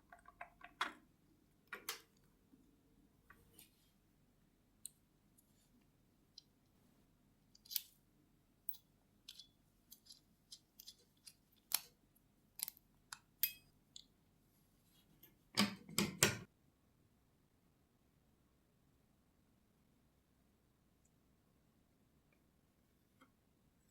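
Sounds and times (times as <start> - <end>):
clicks of small parts and tools: 1.7 - 2.3, 7.5 - 8.0, 8.7 - 12.0, 12.6 - 14.1.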